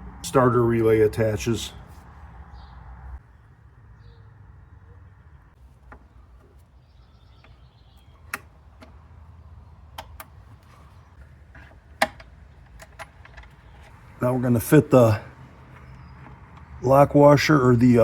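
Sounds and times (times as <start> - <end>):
hand tools clicking and tapping: 7.3 - 9.3, 9.9 - 14.0.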